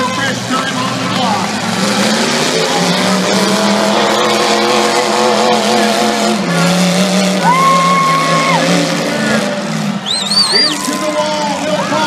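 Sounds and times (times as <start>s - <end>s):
truck engines running hard: 0.0s - 12.0s.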